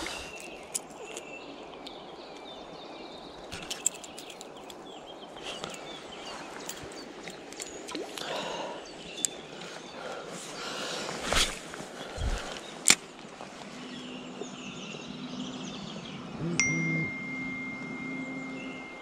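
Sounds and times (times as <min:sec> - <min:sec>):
steady outdoor hiss: 0:00.0 - 0:19.0
fishing tackle clicks: 0:03.5 - 0:04.8.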